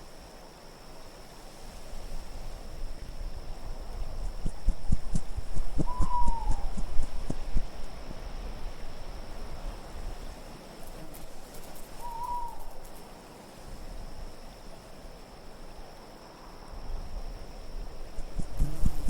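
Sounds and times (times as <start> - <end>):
wind noise: 1.6 - 13.0, 16.6 - 19.0
owl hoot: 5.6 - 7.7, 12.0 - 12.8.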